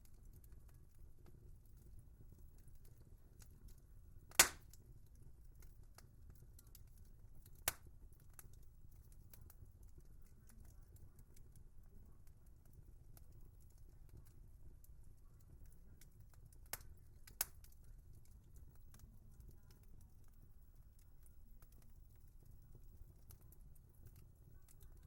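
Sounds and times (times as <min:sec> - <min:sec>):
wood fire crackling: 0:00.0 - 0:25.0
loud sharp pop: 0:04.4 - 0:04.6.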